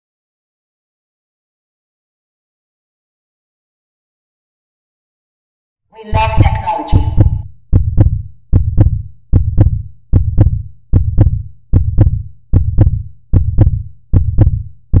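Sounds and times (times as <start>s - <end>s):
heartbeat double thump: 6.1s - 15.0s.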